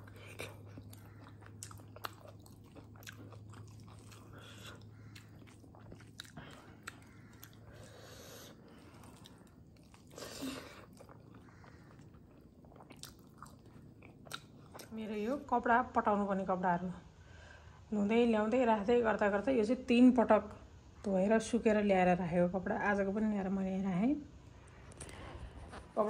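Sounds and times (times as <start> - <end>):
chewing with mouth clicks: 0.0 - 15.0
faint low hum: 0.0 - 26.0.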